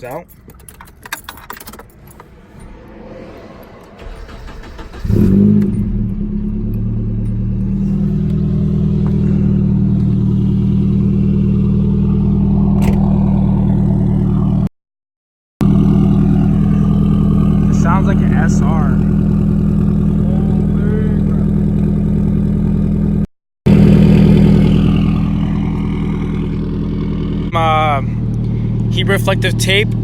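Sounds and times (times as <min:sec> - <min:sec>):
car engine revving and idling: 0:01.8 - 0:14.7, 0:15.6 - 0:30.0
starter cranking: 0:04.0 - 0:07.4.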